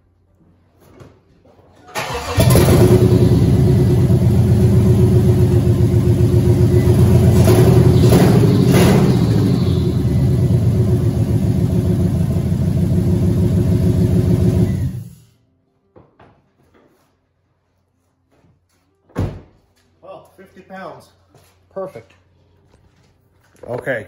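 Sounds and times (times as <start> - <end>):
engine running unevenly: 2.3 - 15.1.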